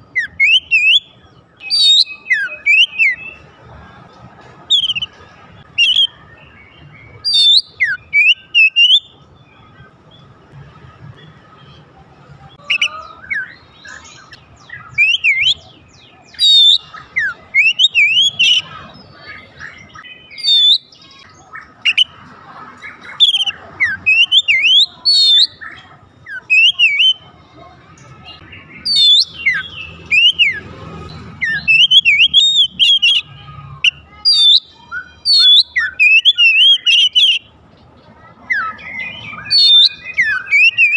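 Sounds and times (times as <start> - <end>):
bird singing whistled phrases: 0.1 - 3.4, 4.7 - 5.1, 5.7 - 9.2, 12.6 - 22.2, 23.0 - 27.2, 28.3 - 30.6, 31.4 - 37.5, 38.5 - 40.9.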